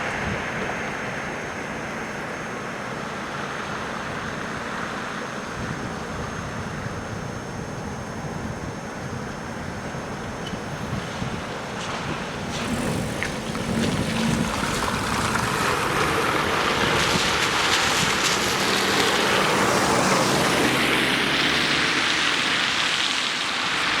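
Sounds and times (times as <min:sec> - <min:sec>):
low train hum: 0:11.6 - 0:20.0
train wheels rushing on rail: 0:11.8 - 0:21.0.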